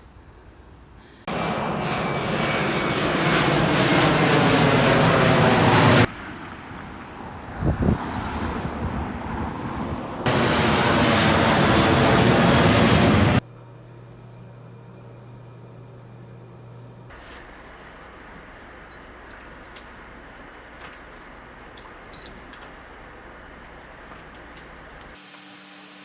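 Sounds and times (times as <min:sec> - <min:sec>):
aircraft engine noise: 0:01.3 - 0:13.4, 0:17.1 - 0:25.2
low steady hum: 0:13.1 - 0:25.2.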